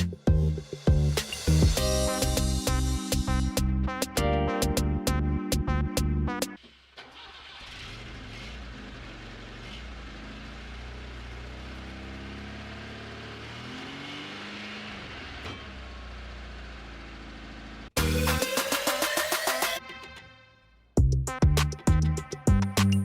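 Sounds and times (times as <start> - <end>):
car engine humming: 7.0 - 18.4.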